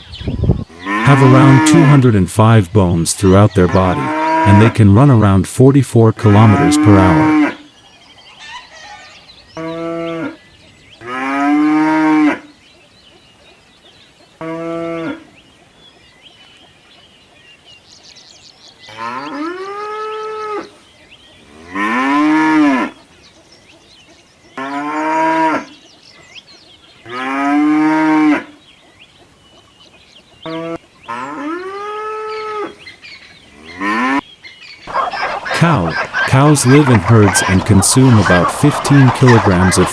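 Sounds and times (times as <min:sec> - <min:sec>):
cattle mooing: 0:00.7 - 0:02.2, 0:03.2 - 0:05.2, 0:06.2 - 0:07.6, 0:09.6 - 0:10.4, 0:11.0 - 0:12.5, 0:14.4 - 0:15.3, 0:18.9 - 0:20.7, 0:21.4 - 0:23.0, 0:27.1 - 0:28.6, 0:30.4 - 0:32.8, 0:33.5 - 0:34.2, 0:35.5 - 0:39.9.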